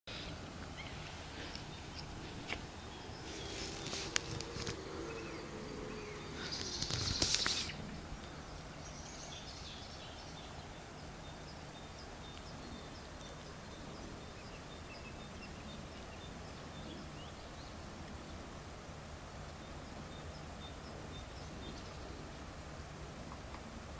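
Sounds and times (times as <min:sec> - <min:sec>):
rustling hiss: 0:00.1 - 0:23.9
faint bird chirps: 0:00.2 - 0:17.8.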